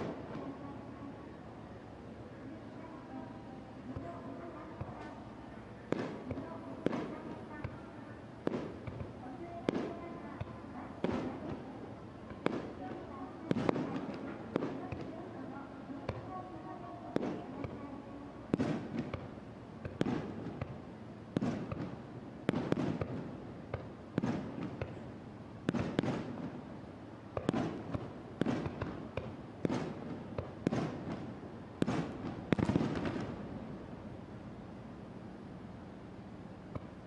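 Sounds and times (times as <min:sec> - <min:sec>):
firework shells booming: 0:08.4 - 0:11.6, 0:18.5 - 0:20.8, 0:21.4 - 0:25.0, 0:25.7 - 0:26.6, 0:27.4 - 0:33.5.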